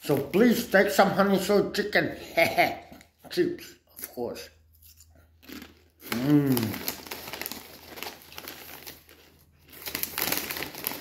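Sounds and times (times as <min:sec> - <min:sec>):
chip packet crinkling: 0:05.4 - 0:11.0
person humming: 0:06.1 - 0:06.8.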